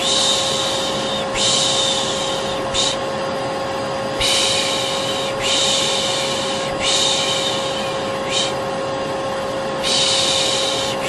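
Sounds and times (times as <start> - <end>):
vacuum cleaner humming: 0.0 - 11.0.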